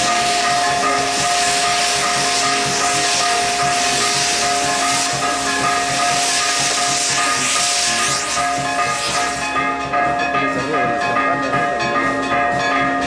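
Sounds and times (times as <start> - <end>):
fireworks hissing: 0.0 - 9.7.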